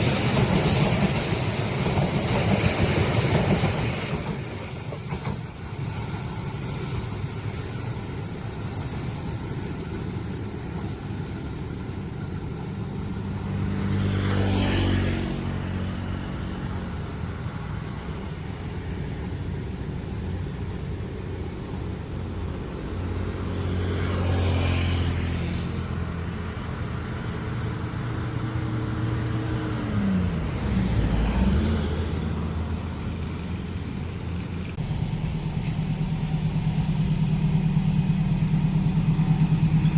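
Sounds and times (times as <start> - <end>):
traffic engines running: 9.3 - 39.9
vehicles passing close: 11.7 - 39.9.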